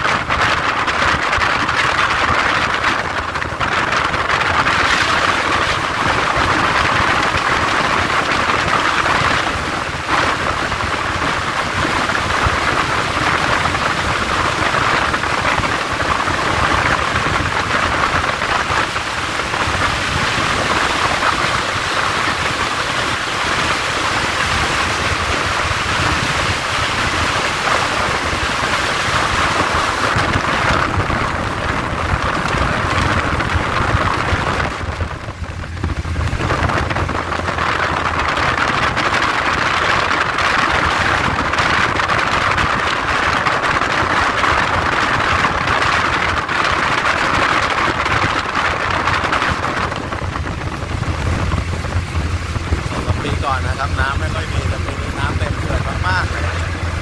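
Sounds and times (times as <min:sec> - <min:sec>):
moving train running noise: 0:00.0 - 0:57.0
wind rushing: 0:00.0 - 0:57.0.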